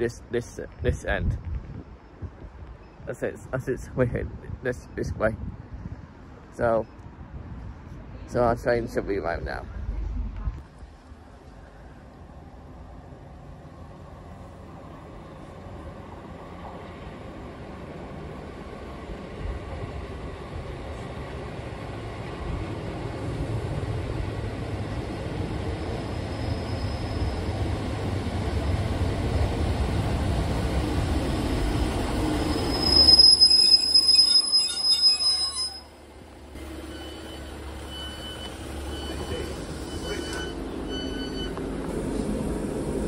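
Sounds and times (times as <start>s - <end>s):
diesel train engine and wheels: 0.0s - 43.0s
high brake squeal: 26.2s - 27.6s, 32.3s - 36.0s, 36.6s - 41.6s
short high beeps: 36.8s - 41.6s.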